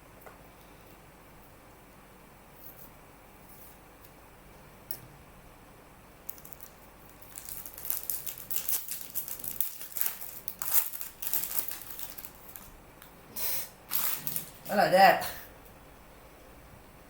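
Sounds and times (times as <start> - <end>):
foil wrapper crinkling: 6.2 - 12.8, 13.9 - 14.8.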